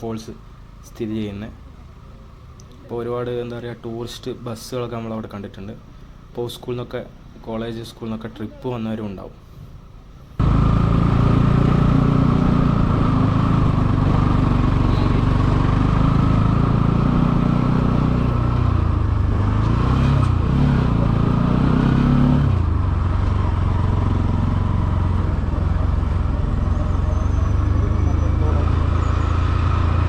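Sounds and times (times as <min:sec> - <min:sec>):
motorcycle engine running: 0:10.4 - 0:30.0.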